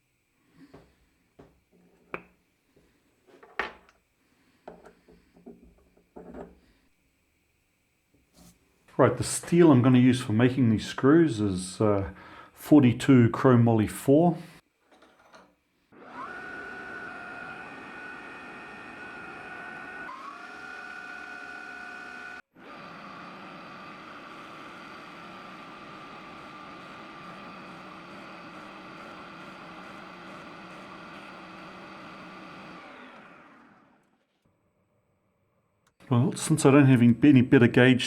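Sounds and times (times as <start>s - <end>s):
lathe whining: 16.0s - 34.2s.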